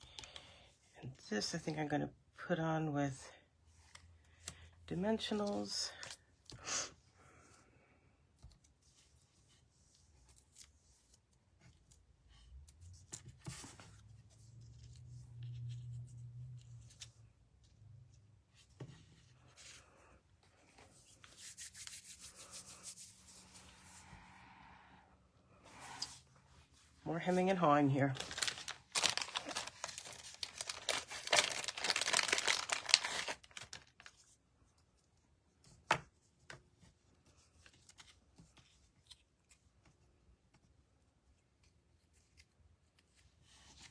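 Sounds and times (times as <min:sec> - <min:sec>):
paper and card rustling: 0:08.5 - 0:17.2, 0:18.5 - 0:23.8, 0:27.2 - 0:34.4.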